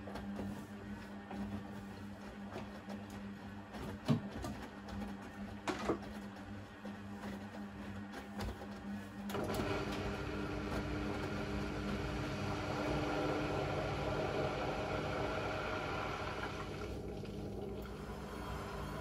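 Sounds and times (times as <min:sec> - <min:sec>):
washing machine water inlet rushing: 0:09.3 - 0:19.0.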